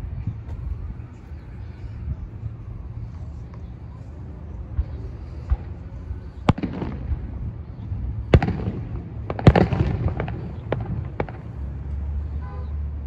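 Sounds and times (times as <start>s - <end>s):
fireworks crackling and pops: 6.4s - 7.4s, 8.1s - 12.0s
fireworks bangs: 6.4s - 11.8s.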